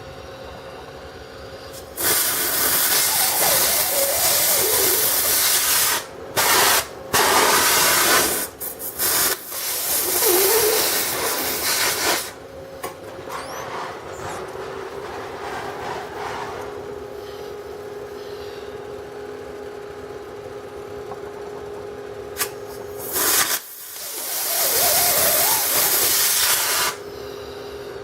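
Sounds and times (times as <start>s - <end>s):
gas torch hissing: 1.7s - 15.0s, 22.4s - 27.0s.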